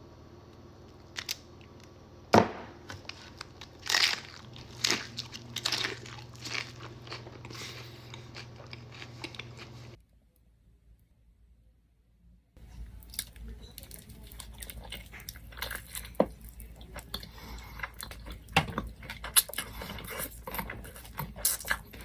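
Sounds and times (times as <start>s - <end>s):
crunchy chewing: 2.9s - 10.0s, 12.9s - 22.0s.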